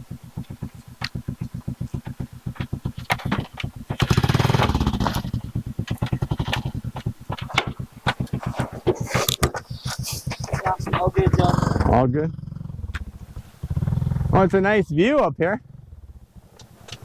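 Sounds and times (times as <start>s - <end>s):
motorcycle engine putting and revving: 0.0s - 17.0s.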